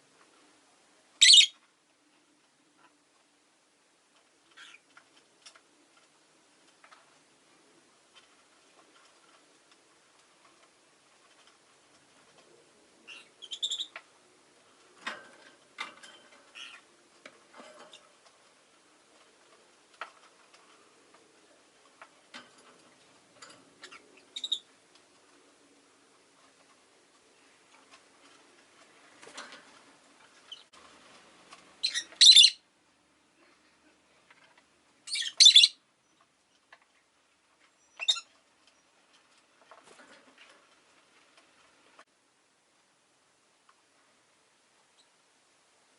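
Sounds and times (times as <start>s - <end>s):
lovebird chirping: 1.2s - 1.6s, 13.1s - 14.0s, 23.9s - 24.7s, 31.8s - 32.6s, 35.1s - 36.2s, 37.8s - 38.3s
lovebird shrill harsh calls: 1.2s - 1.6s, 31.8s - 32.6s, 35.1s - 35.8s, 38.0s - 38.3s.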